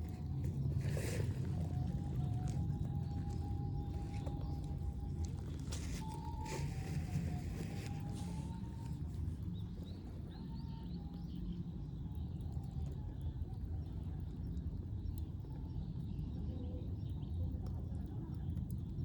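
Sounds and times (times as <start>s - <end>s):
steady low rumble: 0.0s - 10.6s.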